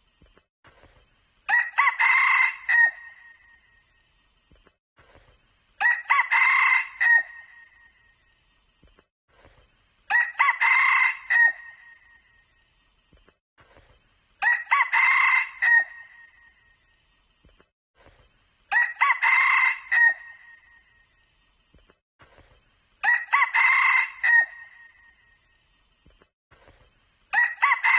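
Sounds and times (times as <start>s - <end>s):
rooster crowing: 1.5s - 3.2s, 5.8s - 7.5s, 10.1s - 11.8s, 14.4s - 16.1s, 18.7s - 20.6s, 23.0s - 25.0s, 27.3s - 27.9s.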